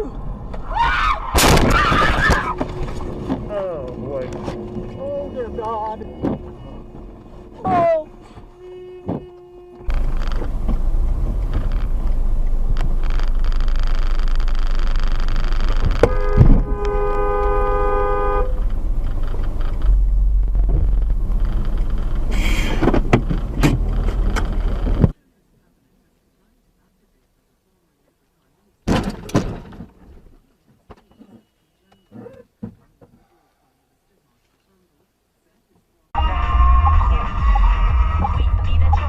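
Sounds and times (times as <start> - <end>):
car road and engine rumble: 0.0 - 39.0
car horn: 4.1 - 10.4, 15.7 - 18.7, 36.2 - 39.0.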